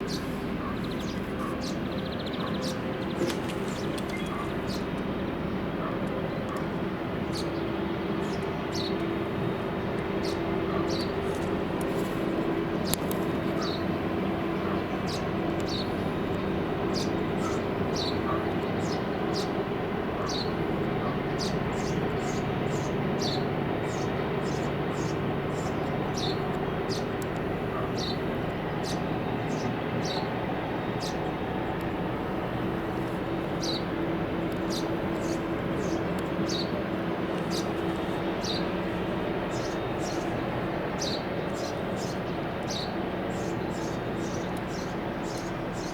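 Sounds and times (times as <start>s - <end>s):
bird chirping: 0.0s - 4.9s, 34.6s - 36.8s, 41.0s - 45.9s
boat engine humming: 0.0s - 45.9s.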